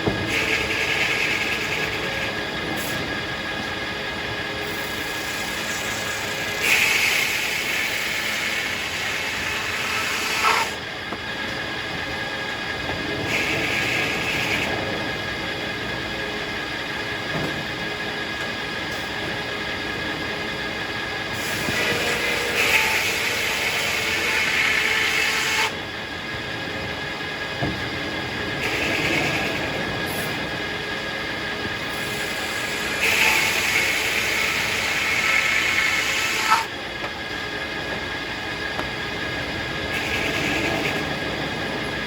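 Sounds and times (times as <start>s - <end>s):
sawmill sawing logs with whine: 0.0s - 42.0s.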